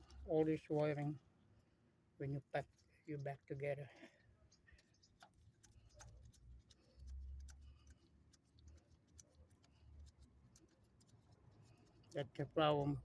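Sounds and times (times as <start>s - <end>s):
hands clicking and tapping wiring: 4.0s - 12.5s.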